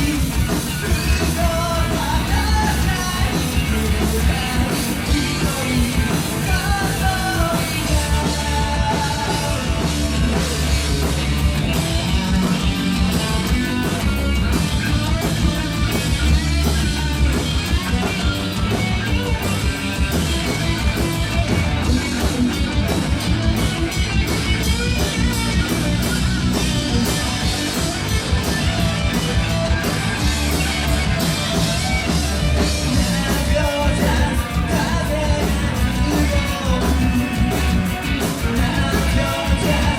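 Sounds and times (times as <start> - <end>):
person singing: 0.0 - 10.1, 32.9 - 39.9
rock band playing live: 0.0 - 39.9.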